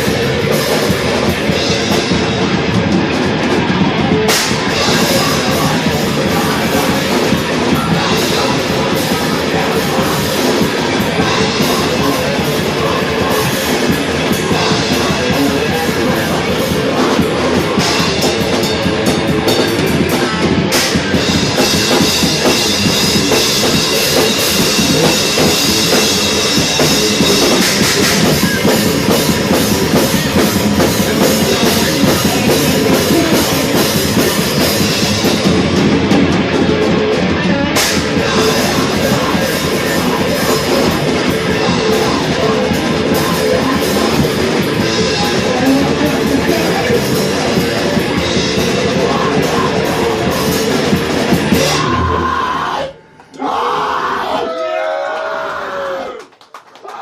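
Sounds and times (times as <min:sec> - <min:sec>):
fast dense drumming: 0:00.0 - 0:52.7
distorted electric guitars: 0:00.0 - 0:56.2.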